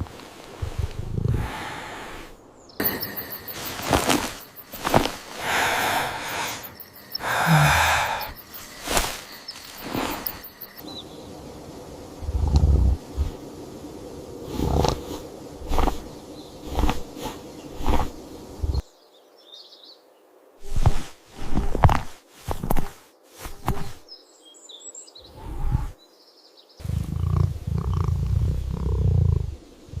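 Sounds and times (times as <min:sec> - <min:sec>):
faint bird chirps: 0:02.6 - 0:04.9
cat purring: 0:26.9 - 0:30.0.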